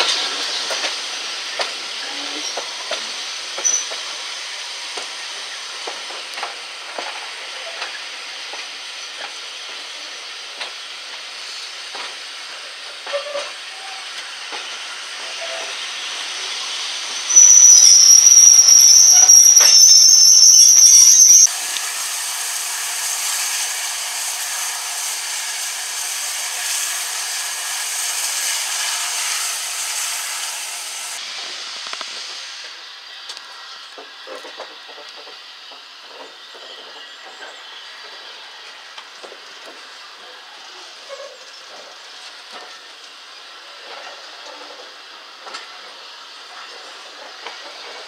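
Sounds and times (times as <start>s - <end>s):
steam train rushing hiss: 0.0s - 48.0s
high-pitched metallic squeal: 17.3s - 31.2s.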